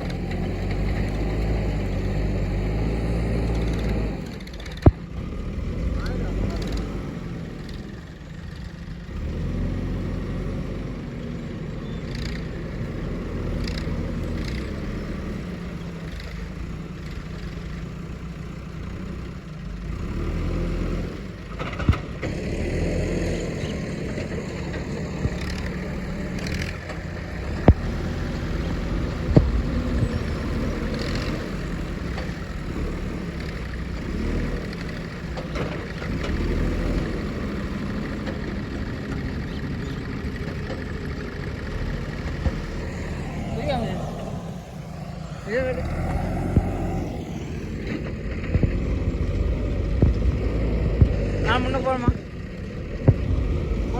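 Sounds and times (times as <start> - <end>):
backhoe diesel engine running: 0.0 - 53.9
sharp knocks: 25.1 - 31.4.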